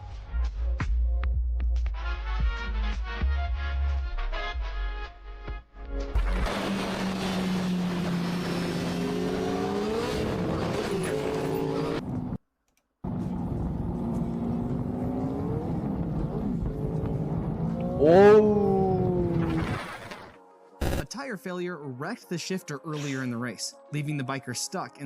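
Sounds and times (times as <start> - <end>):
motorcycle engine accelerating: 13.0 - 19.4.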